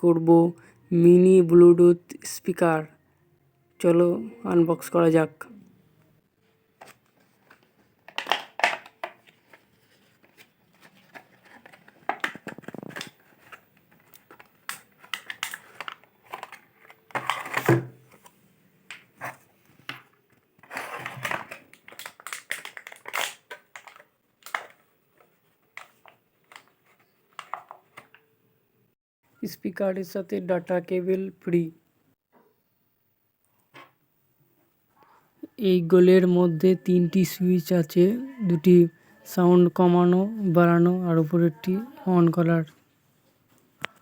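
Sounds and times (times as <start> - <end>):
packaging rustling: 6.8 - 18.3, 18.9 - 28.2.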